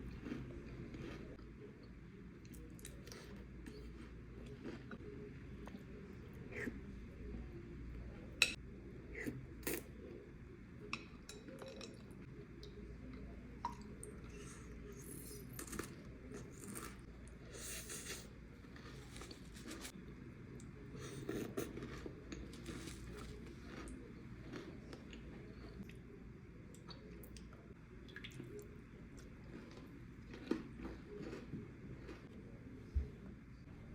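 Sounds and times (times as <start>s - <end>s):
crunchy chewing: 0.0s - 1.4s, 2.4s - 5.9s, 20.8s - 25.9s, 29.2s - 32.4s.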